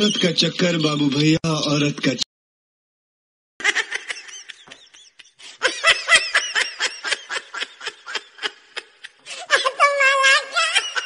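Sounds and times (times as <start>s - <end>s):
giggling laughter: 3.6s - 11.0s.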